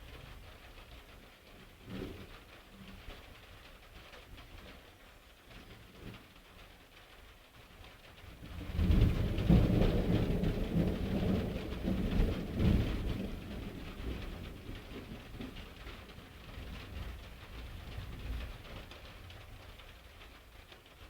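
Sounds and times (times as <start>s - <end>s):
steady rain: 0.0s - 21.0s
thunder rumbling: 8.6s - 15.9s.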